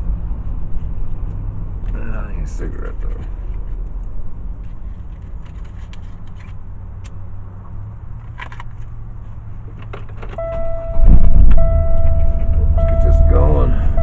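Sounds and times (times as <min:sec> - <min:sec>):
car engine and road rumble: 0:00.0 - 0:14.0
steady electronic tone: 0:10.4 - 0:14.0.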